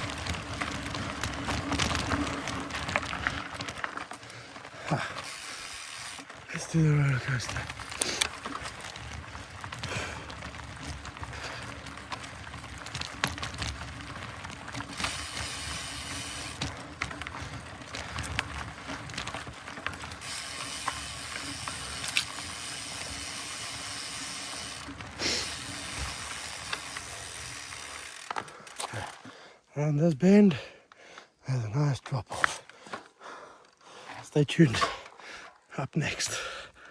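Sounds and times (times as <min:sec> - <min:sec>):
bike knocks and rattles: 0:00.0 - 0:04.1, 0:06.9 - 0:29.1
tyres hissing on dirt: 0:15.0 - 0:16.7, 0:20.2 - 0:28.3.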